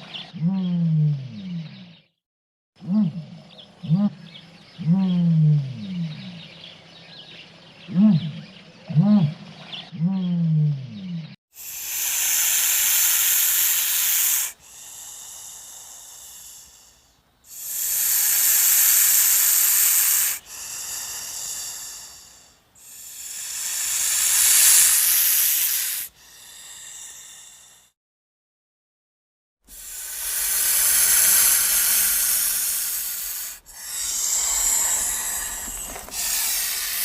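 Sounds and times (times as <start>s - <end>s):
snake hissing: 11.5s - 28.0s, 29.7s - 37.0s.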